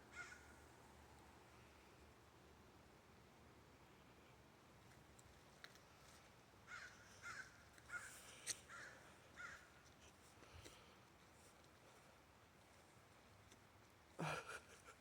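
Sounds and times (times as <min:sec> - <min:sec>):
faint crow cawing: 0:00.1 - 0:00.6, 0:06.7 - 0:09.8.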